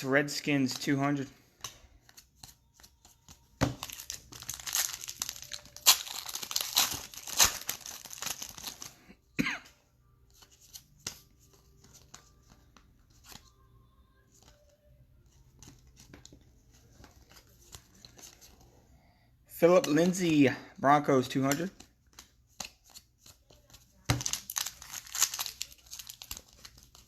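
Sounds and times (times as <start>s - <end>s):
foil wrapper tearing and crinkling: 3.8s - 8.9s, 24.1s - 27.0s.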